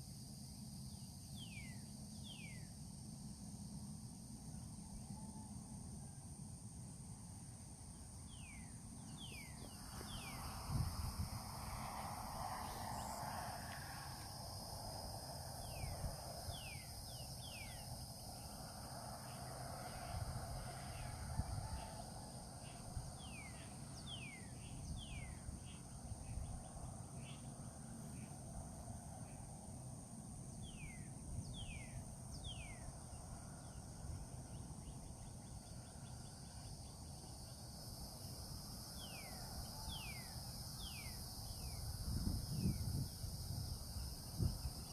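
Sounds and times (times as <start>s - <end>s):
high-pitched insect drone: 0.0s - 44.9s
wind rumble on microphone: 9.0s - 27.4s, 30.6s - 35.6s, 40.8s - 44.9s.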